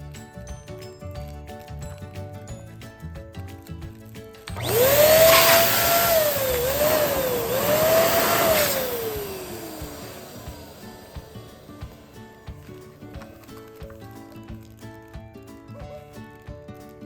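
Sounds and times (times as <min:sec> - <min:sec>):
quiet background music: 0:00.0 - 0:17.0
electric balloon pump whining: 0:04.5 - 0:13.4.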